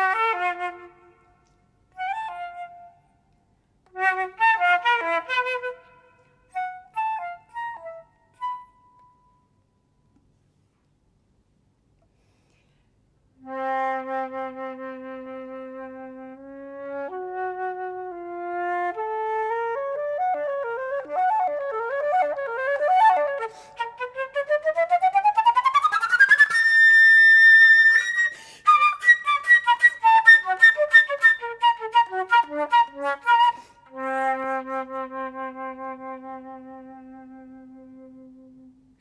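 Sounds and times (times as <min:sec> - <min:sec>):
solo flute playing fast runs: 0:19.6 - 0:38.6.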